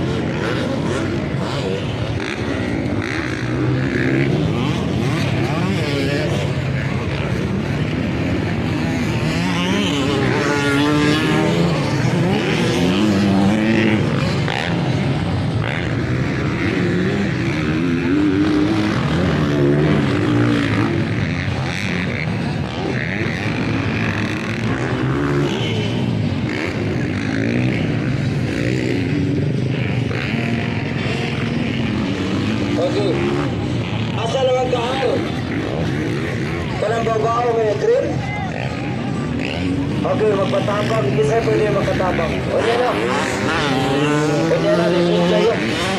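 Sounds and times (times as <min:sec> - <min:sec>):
dirt bike engines revving: 0:00.0 - 0:45.9.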